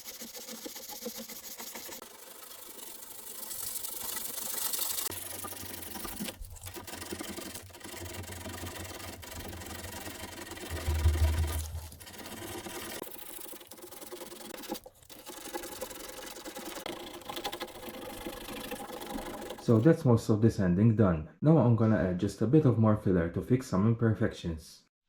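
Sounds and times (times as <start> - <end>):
sandpaper rubbing on filler: 0.0 - 15.0.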